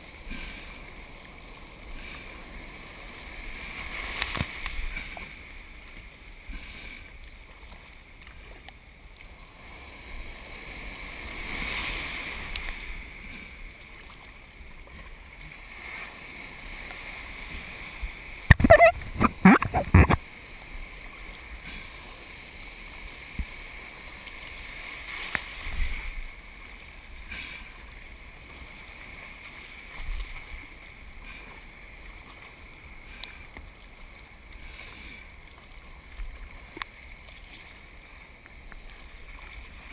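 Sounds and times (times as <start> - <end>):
wind: 0.0 - 39.9
surf water rushing: 15.6 - 21.2.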